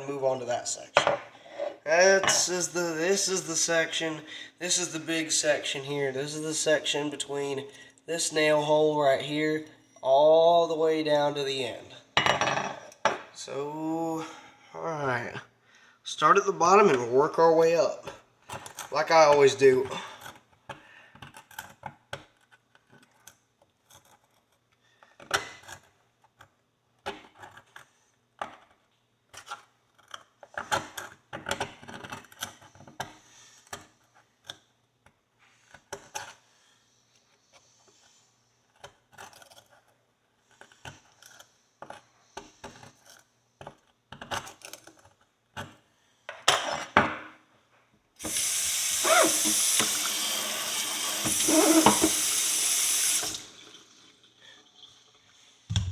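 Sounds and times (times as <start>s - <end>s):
tap water running: 48.2s - 55.8s
metal tool scraping horseshoe: 51.4s - 52.2s.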